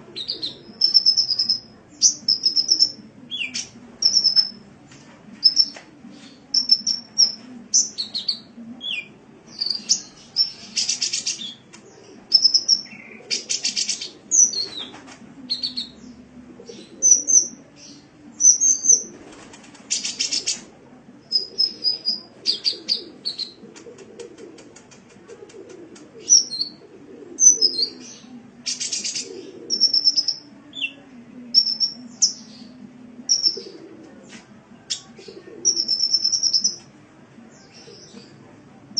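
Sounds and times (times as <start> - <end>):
bird chirping and trilling: 0.2 - 4.6, 31.5 - 32.7, 33.3 - 33.7, 35.7 - 36.8.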